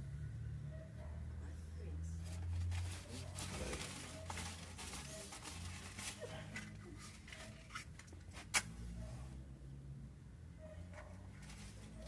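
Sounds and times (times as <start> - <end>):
paper burning and crackling: 2.4 - 6.3.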